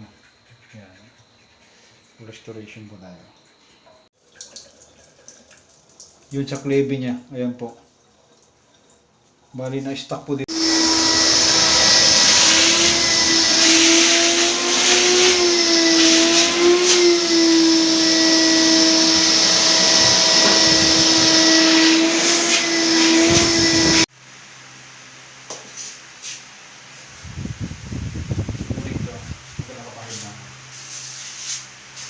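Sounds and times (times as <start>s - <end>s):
power tool motor whining: 10.5s - 24.1s.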